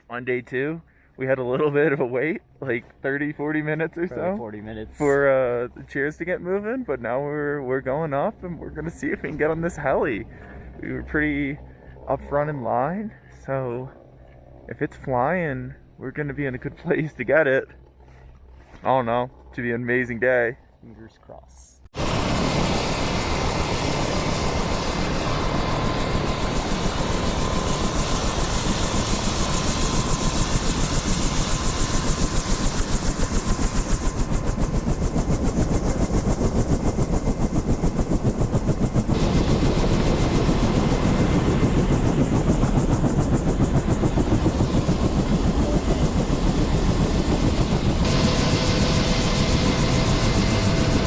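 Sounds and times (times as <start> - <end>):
helicopter engine and rotor: 8.7 - 17.0, 22.0 - 51.0.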